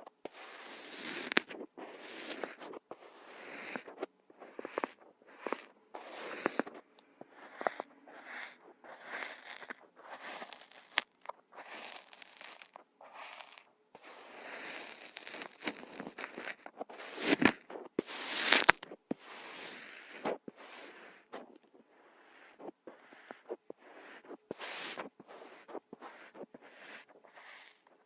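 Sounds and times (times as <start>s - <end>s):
sand crunching: 8.4s - 21.6s, 22.2s - 27.8s.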